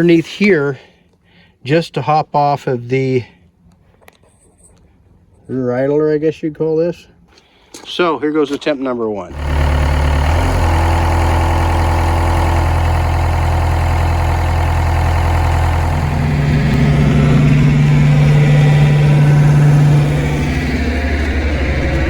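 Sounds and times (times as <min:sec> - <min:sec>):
excavator diesel engine running: 0:09.3 - 0:22.0.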